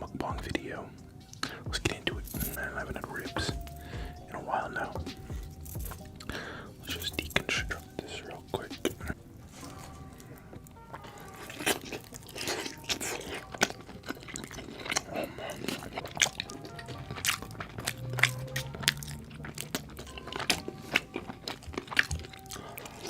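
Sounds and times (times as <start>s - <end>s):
crunching bites and chewing: 4.8s - 23.0s.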